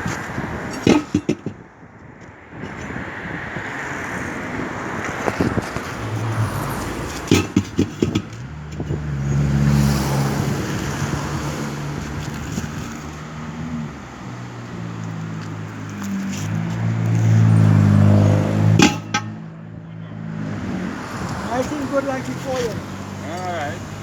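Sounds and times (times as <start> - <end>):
sharp knocks: 0.7 - 1.7, 7.1 - 9.1, 18.7 - 19.5
engine running: 5.0 - 24.0.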